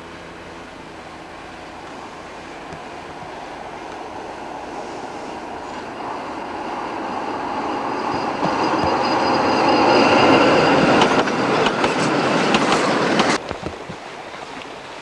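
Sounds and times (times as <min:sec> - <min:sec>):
tram passing: 0:00.2 - 0:13.4
high squeal of tram wheels: 0:02.5 - 0:13.4.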